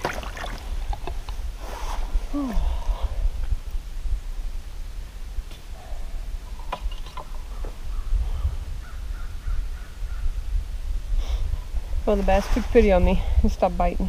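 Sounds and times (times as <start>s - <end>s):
steady low rumble: 0.5s - 6.7s.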